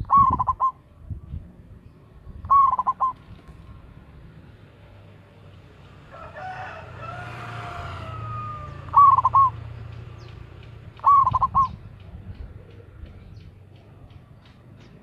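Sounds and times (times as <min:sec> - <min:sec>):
dove cooing: 0:00.0 - 0:00.8, 0:02.4 - 0:03.3, 0:07.2 - 0:09.8, 0:10.9 - 0:11.9
distant rooster crowing: 0:06.0 - 0:09.6.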